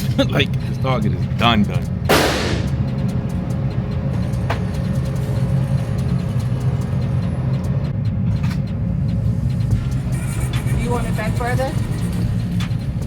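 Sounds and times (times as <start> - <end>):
low machinery rumble: 0.0 - 13.0
sharp crack: 2.1 - 3.0.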